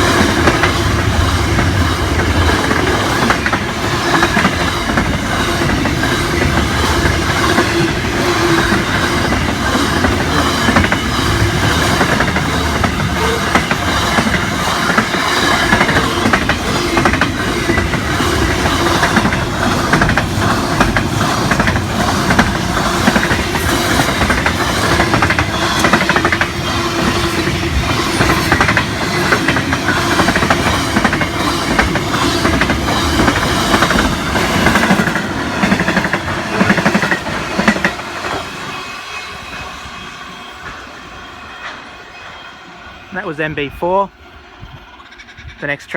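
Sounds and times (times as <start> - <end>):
train wheels clacking over rail joints: 0.0 - 38.9
faint ringing from wheels: 38.4 - 43.2.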